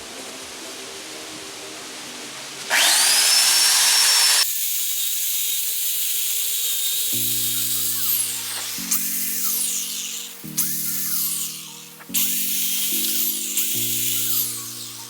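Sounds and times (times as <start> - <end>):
background music: 0.0 - 3.5, 7.1 - 15.0
steady hiss: 0.0 - 15.0
electric chainsaw revving: 2.7 - 15.0.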